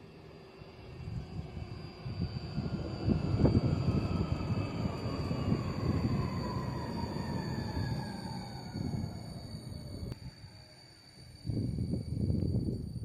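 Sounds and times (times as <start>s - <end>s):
tram wheels rumbling on rails: 0.0s - 10.2s.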